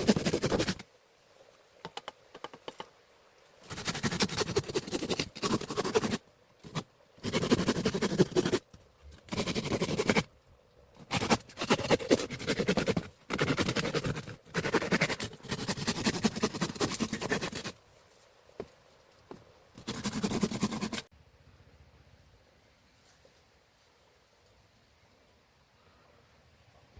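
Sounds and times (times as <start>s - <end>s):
dry scratching and crackling: 0.0s - 0.8s, 11.0s - 21.1s.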